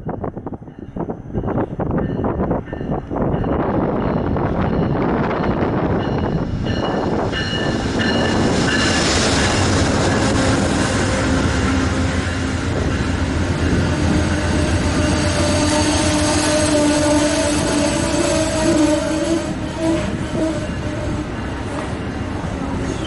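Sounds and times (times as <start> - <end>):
passenger train rumbling: 0.0 - 23.0
wind buffeting microphone: 0.0 - 23.0
train wheel squeals: 6.0 - 21.9, 22.7 - 23.0.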